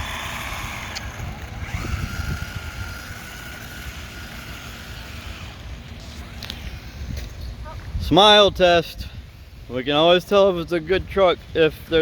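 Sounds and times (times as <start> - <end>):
electric motor whining: 0.0 - 6.7.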